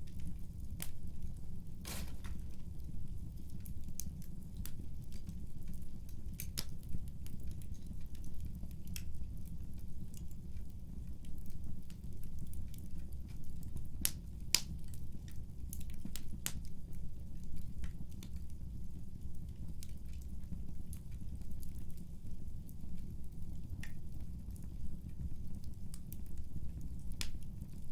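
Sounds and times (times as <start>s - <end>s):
fire crackles and pops: 0.0s - 27.9s.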